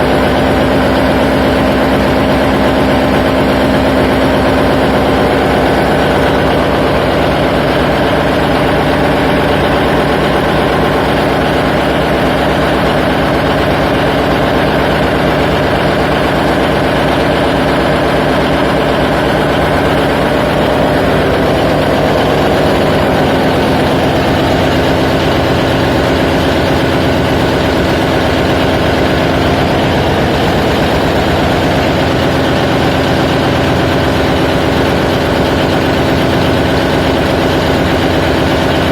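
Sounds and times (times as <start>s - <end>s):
marine diesel engine drone: 0.0s - 38.9s.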